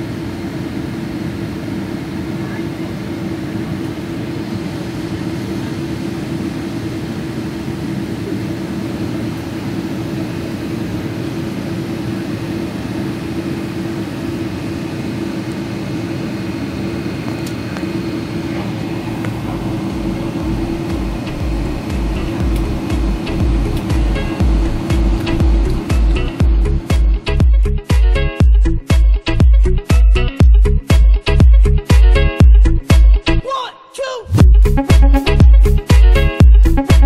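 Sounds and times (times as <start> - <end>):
aircraft cabin droning hum: 0.0 - 28.0.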